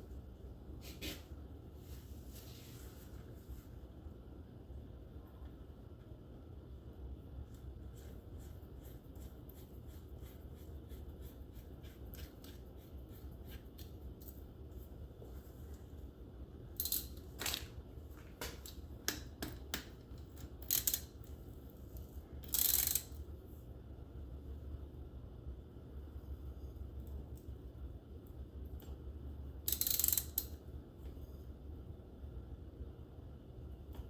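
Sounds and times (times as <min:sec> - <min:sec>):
metal tools clicking and ticking: 0:16.8 - 0:17.6, 0:18.6 - 0:21.4, 0:22.0 - 0:23.2, 0:29.6 - 0:30.6.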